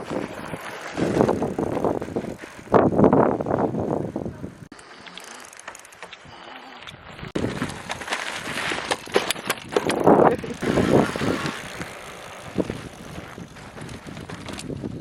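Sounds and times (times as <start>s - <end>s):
wind buffeting microphone: 0.0s - 4.7s, 6.9s - 15.0s.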